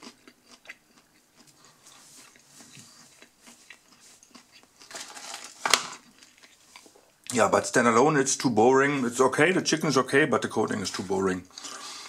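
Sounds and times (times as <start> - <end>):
close-up chewing: 0.0 - 7.3.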